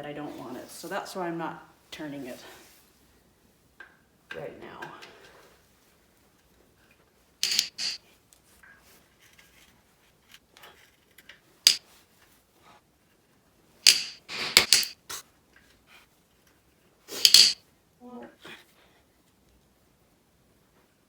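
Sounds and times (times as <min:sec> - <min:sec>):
metal tools clanking on engine parts: 0:07.4 - 0:08.0, 0:17.2 - 0:17.6
sharp clicks: 0:07.4 - 0:08.0, 0:13.9 - 0:15.0, 0:17.2 - 0:17.6.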